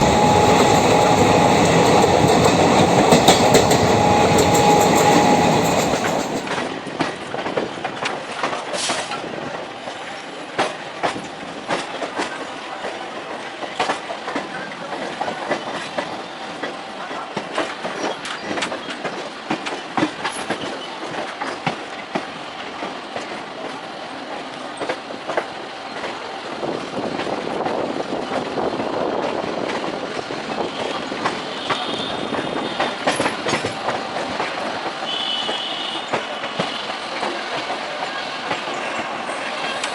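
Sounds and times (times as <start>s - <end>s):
held tone: 0.0s - 6.7s
train running rumble: 0.0s - 39.9s
train wheels clicking over rail joints: 0.0s - 39.9s.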